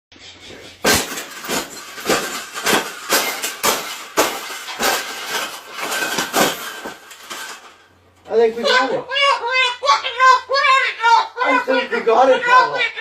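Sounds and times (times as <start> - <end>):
bird cage banging and rattling: 0.8 - 7.8.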